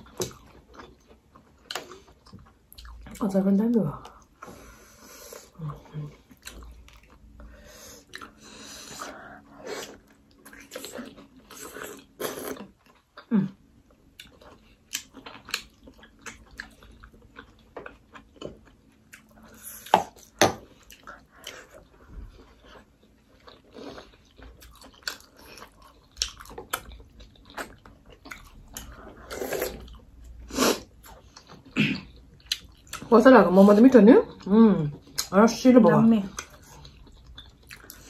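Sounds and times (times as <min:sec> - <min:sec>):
wet chewing and lip smacking: 0:14.1 - 0:30.4, 0:31.0 - 0:33.1, 0:34.3 - 0:35.3, 0:36.3 - 0:38.0.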